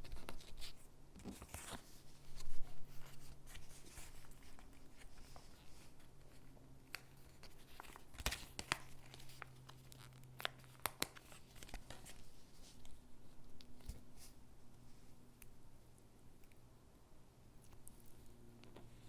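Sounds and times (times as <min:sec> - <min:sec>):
paper rustling: 0:00.0 - 0:13.0.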